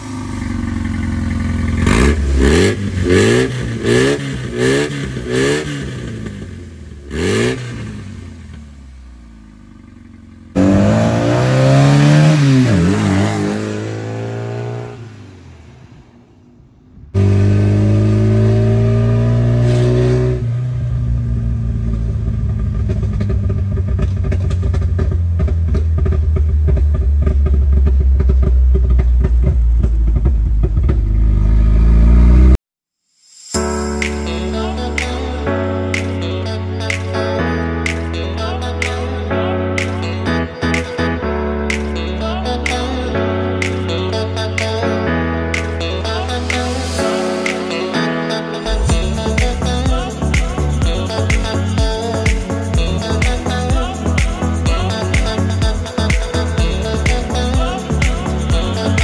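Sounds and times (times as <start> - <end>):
car engine revving: 0.0 - 32.6.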